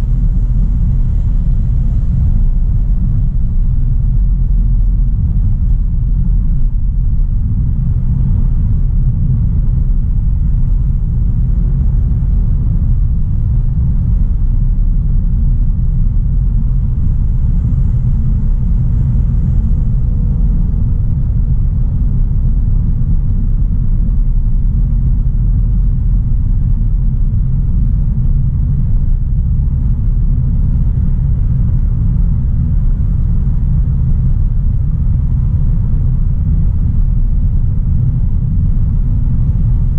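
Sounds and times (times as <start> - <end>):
road noise: 0.0 - 27.8
car engine rumble: 0.0 - 39.9.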